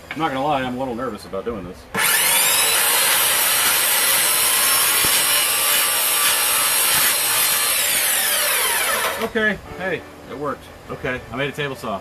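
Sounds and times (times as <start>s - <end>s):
circular saw motor whine: 2.0s - 9.3s.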